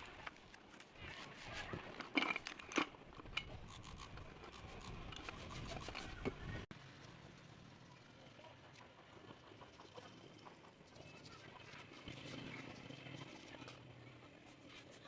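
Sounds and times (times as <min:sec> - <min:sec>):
rubbing and scraping handling noise: 0:00.0 - 0:06.7.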